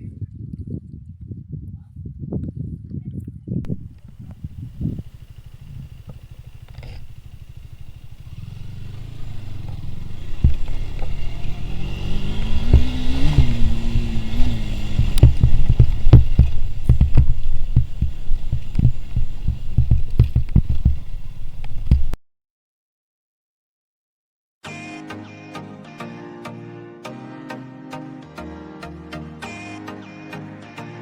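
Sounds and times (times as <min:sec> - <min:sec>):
motorcycle engine throbbing: 0:03.7 - 0:22.2.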